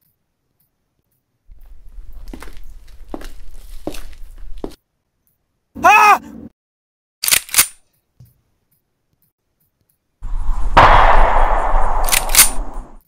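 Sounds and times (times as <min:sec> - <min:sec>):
low rumble: 0:10.2 - 0:13.0
sharp clicks: 0:10.8 - 0:13.0.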